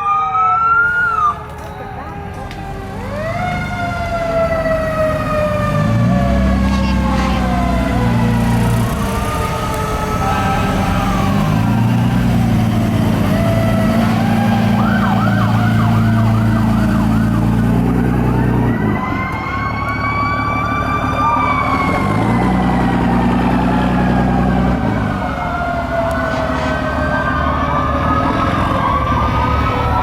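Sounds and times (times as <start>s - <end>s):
fast siren yelp: 0.0s - 30.0s
fire truck sirens wailing: 0.0s - 30.0s
deep air horn blasts: 5.4s - 15.0s, 24.7s - 29.3s.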